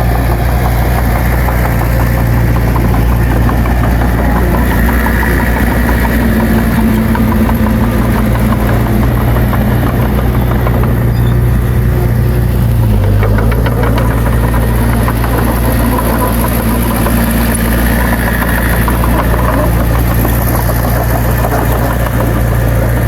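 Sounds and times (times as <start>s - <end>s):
heavy diesel engine running: 0.0s - 23.0s
light clatter: 0.0s - 23.0s.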